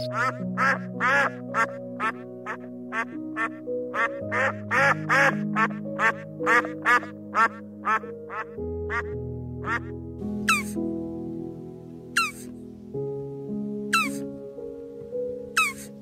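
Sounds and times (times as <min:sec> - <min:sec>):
duck quacking: 0:00.0 - 0:09.9, 0:10.5 - 0:10.8, 0:12.2 - 0:12.5, 0:14.0 - 0:14.2, 0:15.6 - 0:15.9
background music: 0:00.0 - 0:16.0.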